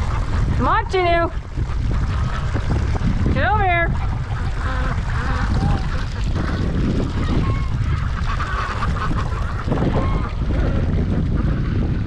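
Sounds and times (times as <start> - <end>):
wind rumble on microphone: 0.0 - 12.0
geese honking: 3.4 - 11.8.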